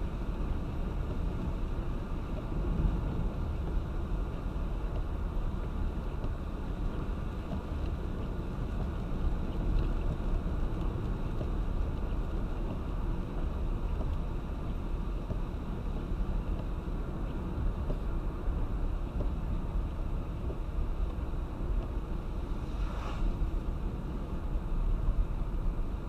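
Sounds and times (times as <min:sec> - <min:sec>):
road and tyre rumble: 0:00.0 - 0:26.0
rain hiss: 0:22.0 - 0:25.8.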